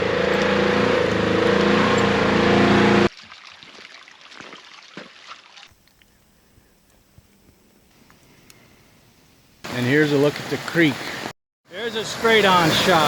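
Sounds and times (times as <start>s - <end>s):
vehicle engine running: 0.0s - 3.1s
faint ticks and rustles: 5.8s - 9.0s.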